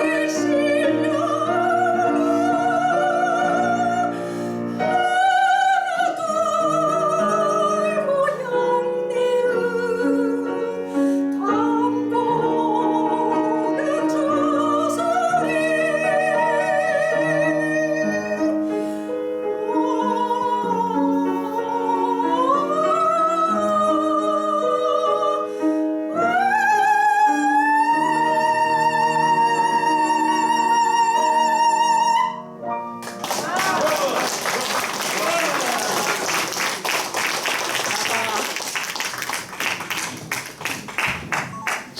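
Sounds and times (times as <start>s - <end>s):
soprano singing operatically: 0.0s - 32.6s
piano accompaniment: 0.0s - 41.9s.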